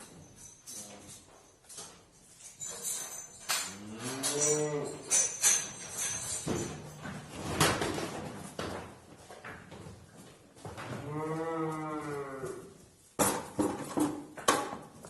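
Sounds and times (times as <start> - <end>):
cattle mooing: 11.0 - 12.6.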